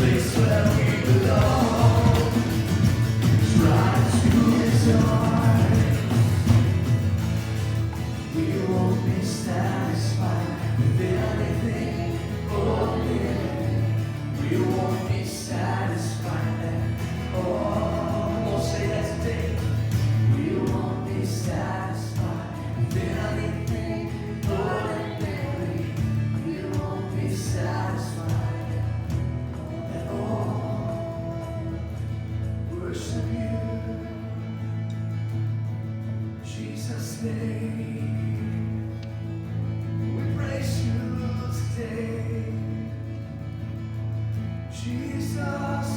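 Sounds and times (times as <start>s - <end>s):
group of voices singing: 0.0s - 34.6s, 40.2s - 43.0s, 44.7s - 45.9s
steady bass line: 0.0s - 36.4s.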